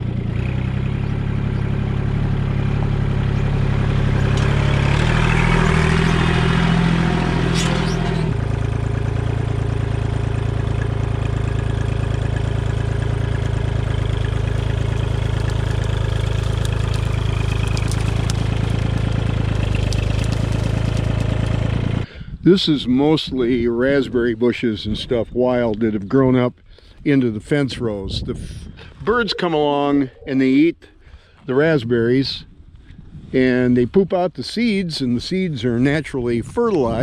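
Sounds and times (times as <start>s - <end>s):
tractor engine running: 0.0s - 22.2s.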